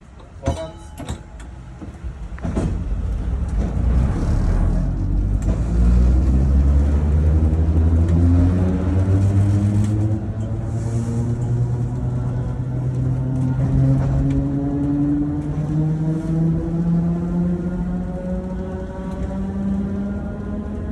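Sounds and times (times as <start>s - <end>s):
tram rumble and motor whine: 0.0s - 20.9s
tram knock: 0.2s - 5.9s.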